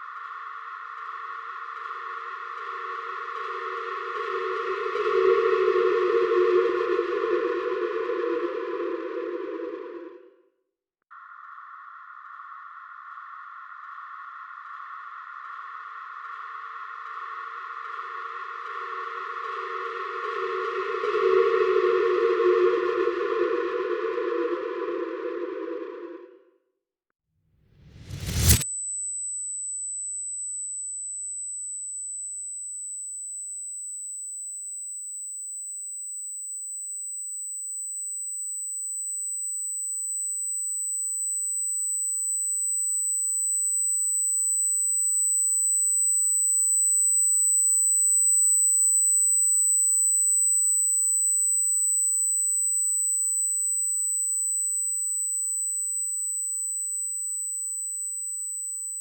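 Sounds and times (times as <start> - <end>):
high-pitched electronic tone: 0.0 - 10.4, 15.3 - 26.5, 27.8 - 28.7.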